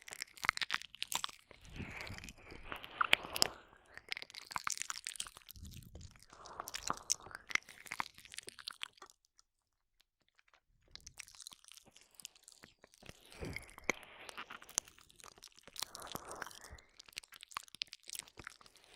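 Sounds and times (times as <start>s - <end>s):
wet mouth licking and smacking: 0.0s - 18.9s.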